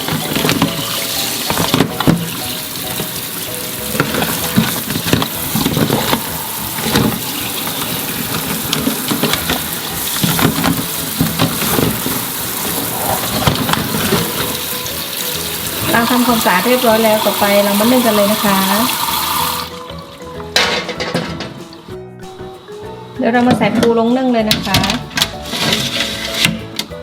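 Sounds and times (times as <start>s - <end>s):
crabs knocking in sink: 0.0s - 19.9s
tap water running: 0.0s - 21.9s.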